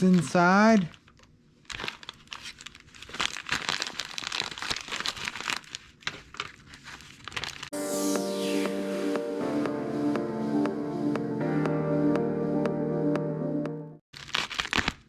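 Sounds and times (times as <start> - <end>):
package being torn open: 0.9 - 7.7, 14.1 - 15.0
music: 7.7 - 14.0.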